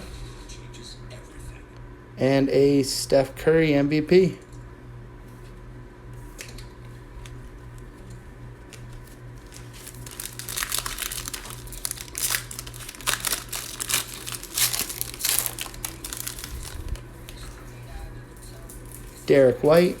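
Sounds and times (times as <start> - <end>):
plastic wrapper tearing and crinkling: 8.6 - 17.5.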